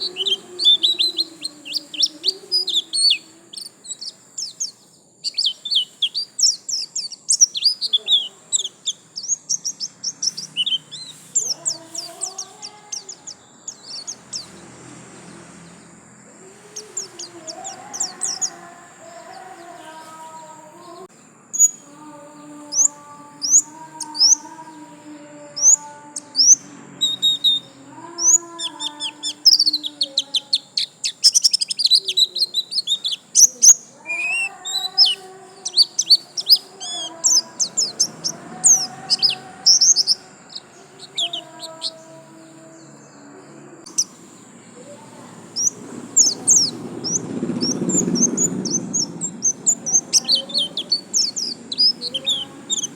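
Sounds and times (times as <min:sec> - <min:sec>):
bird twittering chirps and trills: 0:00.0 - 0:52.9
low rumbling noise: 0:37.2 - 0:52.9.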